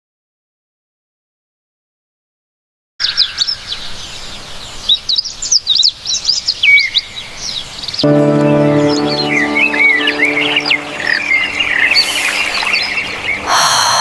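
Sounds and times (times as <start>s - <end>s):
music with held notes: 8.0s - 12.4s.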